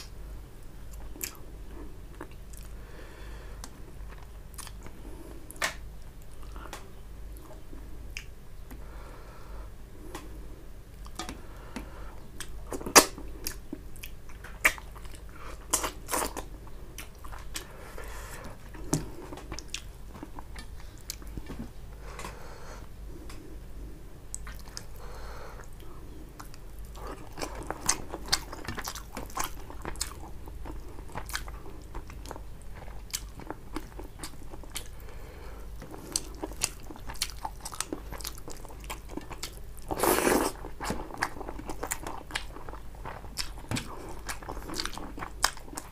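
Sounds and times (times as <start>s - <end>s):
wet chewing: 11.0s - 21.5s, 25.6s - 35.1s, 35.8s - 45.9s
mouth clicks and crunches: 11.0s - 21.6s.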